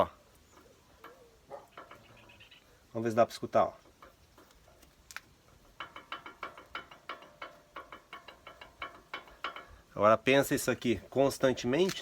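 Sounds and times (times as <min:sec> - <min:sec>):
suspension link clicking and knocking: 0:00.5 - 0:02.3, 0:03.6 - 0:12.0.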